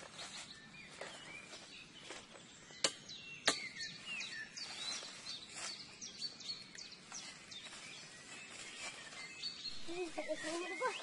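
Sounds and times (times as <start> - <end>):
leaves and grass rustling: 0.0 - 2.8, 3.8 - 11.0
small birds chirping: 0.0 - 11.0
sharp snaps: 2.8 - 3.8.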